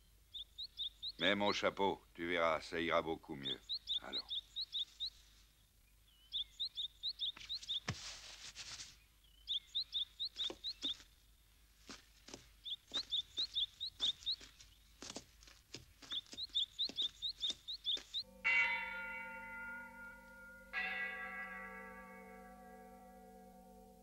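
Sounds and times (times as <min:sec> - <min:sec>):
small bird chirping: 0:00.0 - 0:01.7, 0:03.3 - 0:08.3, 0:09.0 - 0:18.3.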